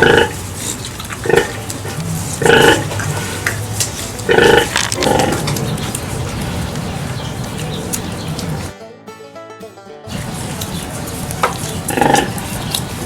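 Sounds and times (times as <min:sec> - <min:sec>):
pig grunting squeals: 0:00.0 - 0:03.6, 0:04.2 - 0:06.0, 0:11.8 - 0:12.5.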